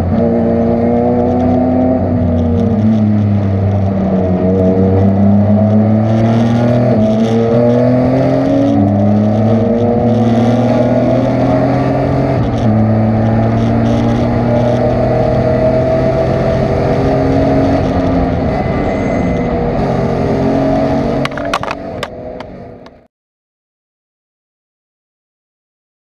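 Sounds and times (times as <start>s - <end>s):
race car engine accelerating: 0.0s - 23.1s.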